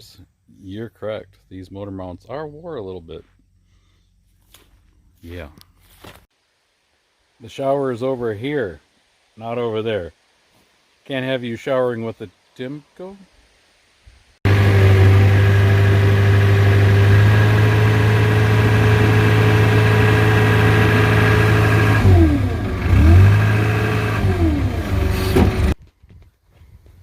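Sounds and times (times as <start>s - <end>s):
diesel engine revving: 14.5s - 25.8s.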